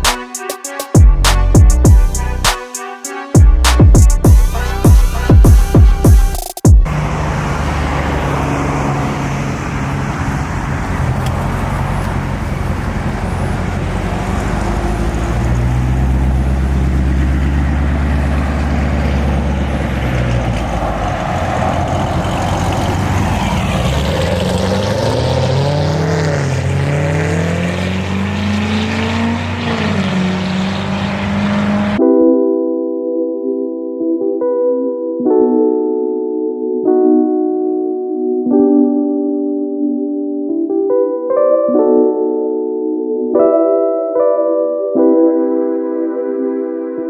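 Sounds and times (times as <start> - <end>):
car engine revving: 6.8 - 32.0.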